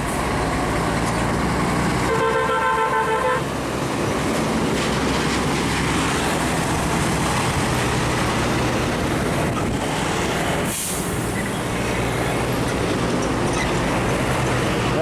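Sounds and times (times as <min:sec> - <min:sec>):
road noise: 0:00.0 - 0:15.0
truck diesel engines droning: 0:00.0 - 0:15.0
air brake hiss: 0:10.7 - 0:11.4.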